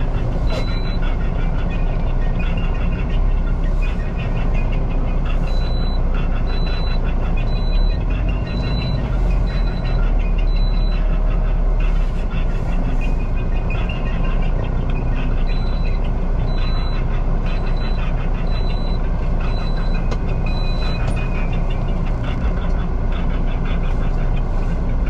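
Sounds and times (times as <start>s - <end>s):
truck engine running: 0.0s - 25.0s
short high beeps: 0.4s - 1.0s.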